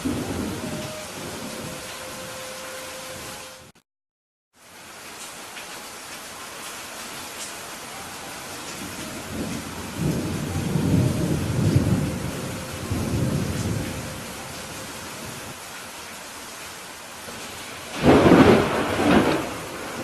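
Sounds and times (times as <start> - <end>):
thunder rumbling: 0.0 - 2.4, 8.7 - 15.6, 17.8 - 20.0
rain hissing: 0.0 - 3.8, 4.6 - 20.0.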